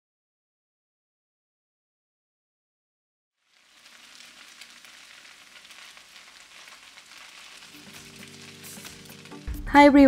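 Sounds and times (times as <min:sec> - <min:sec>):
noodles sizzling in oil: 0:03.4 - 0:10.0
chopsticks stirring in pan: 0:03.5 - 0:09.6.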